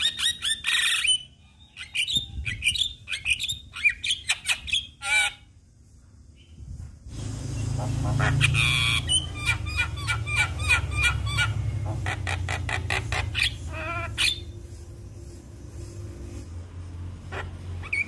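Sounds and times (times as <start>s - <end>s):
steady low hum: 5.4s - 18.0s
bird squawks whistles and chatter: 7.7s - 14.7s, 17.3s - 18.0s.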